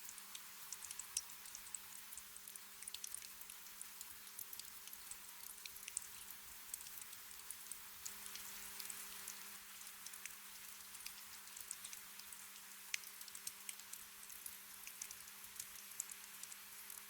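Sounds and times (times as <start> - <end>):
gentle rain: 0.0 - 17.0
raindrops ticking: 10.0 - 17.0.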